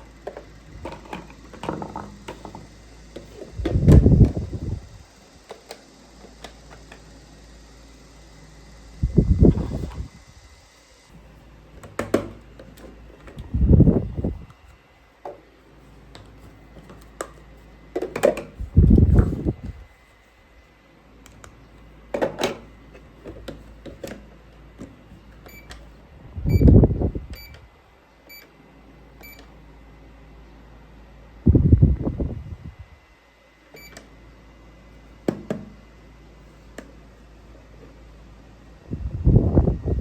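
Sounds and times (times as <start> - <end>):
short electronic beeps: 26.5 - 26.7.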